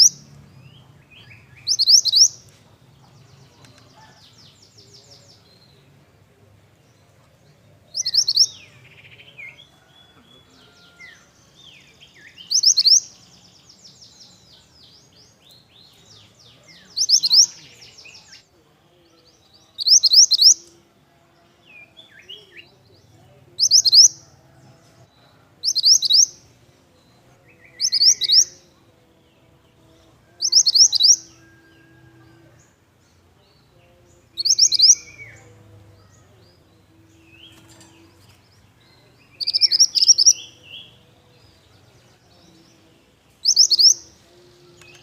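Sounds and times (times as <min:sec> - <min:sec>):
bird singing high phrases: 0:00.0 - 0:02.6, 0:03.2 - 0:18.5, 0:19.1 - 0:20.7, 0:21.6 - 0:24.2, 0:25.6 - 0:32.0, 0:33.4 - 0:45.0
faint bird chirps: 0:43.4 - 0:44.0.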